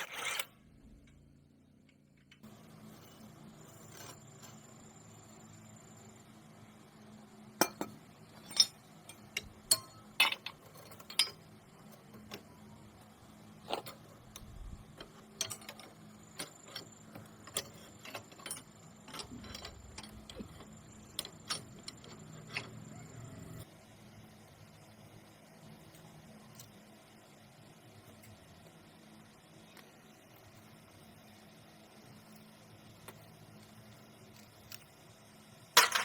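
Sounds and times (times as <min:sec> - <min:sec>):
faint steady hum: 0:00.0 - 0:36.0
hand tools and metal parts clinking: 0:07.6 - 0:12.7, 0:13.6 - 0:23.6, 0:35.8 - 0:36.0.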